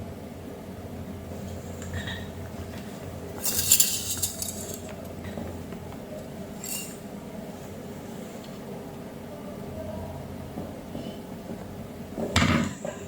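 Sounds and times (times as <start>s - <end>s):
faint steady hum: 0.0s - 13.0s
small hard objects clinking: 3.4s - 4.9s, 6.6s - 7.0s.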